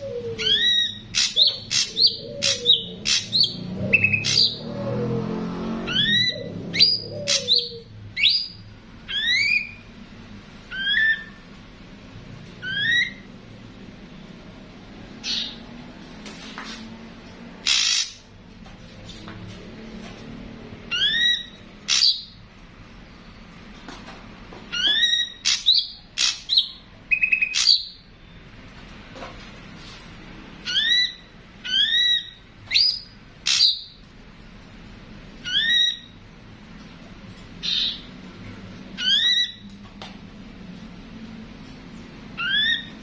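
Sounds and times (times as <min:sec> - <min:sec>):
harsh bird squawks: 0:00.0 - 0:04.8, 0:05.8 - 0:09.8, 0:10.7 - 0:11.4, 0:12.6 - 0:13.3, 0:15.2 - 0:15.6, 0:17.6 - 0:18.3, 0:20.9 - 0:22.4, 0:24.7 - 0:28.1, 0:30.6 - 0:34.0, 0:35.4 - 0:36.2, 0:39.0 - 0:39.6, 0:42.4 - 0:43.0
bird whistled calls: 0:12.6 - 0:13.2, 0:17.7 - 0:18.2, 0:42.4 - 0:42.9.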